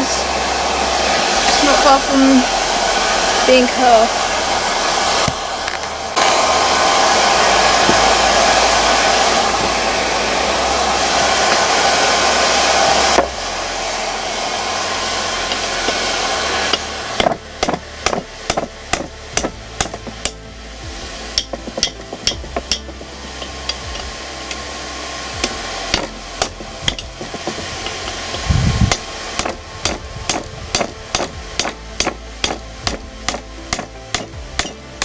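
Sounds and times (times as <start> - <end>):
forge rushing noise: 0.0 - 35.0
hammer striking steel on anvil: 16.7 - 20.4, 21.4 - 24.6, 25.4 - 35.0.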